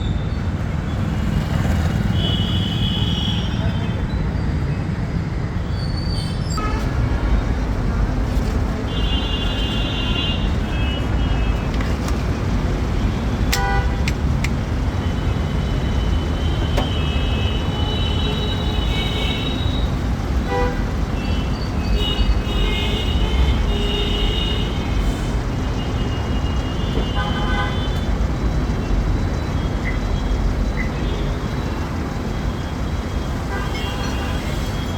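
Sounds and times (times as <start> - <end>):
road traffic rumble: 0.0 - 34.9
vehicle horns honking: 2.0 - 3.9, 6.6 - 7.2, 8.9 - 11.7, 13.2 - 14.4, 15.0 - 25.3, 25.9 - 28.1, 33.3 - 34.9.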